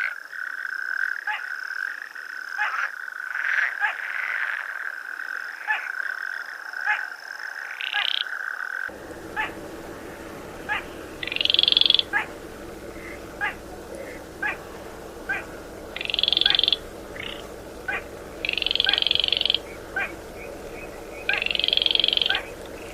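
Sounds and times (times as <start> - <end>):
crake buzzing rattle: 8.9 - 22.9
crake dry ticks: 8.9 - 22.9.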